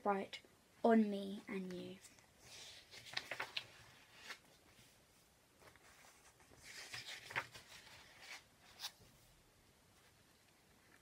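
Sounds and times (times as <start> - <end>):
soft clicks of book handling: 1.6 - 4.5
paper book rustling: 2.4 - 5.0, 5.6 - 9.2.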